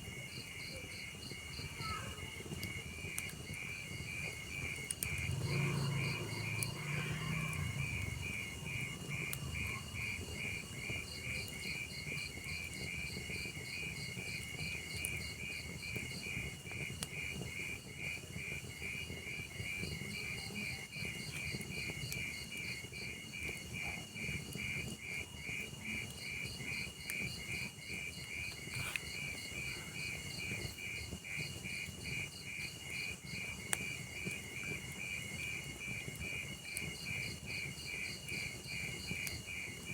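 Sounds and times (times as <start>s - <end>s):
crickets chirping: 0.0s - 39.9s
wood fire crackling and popping: 0.0s - 39.9s.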